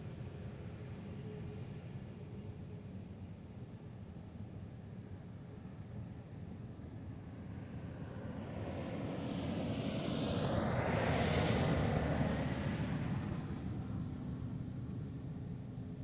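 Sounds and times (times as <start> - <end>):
jet airliner passing: 6.9 - 16.0.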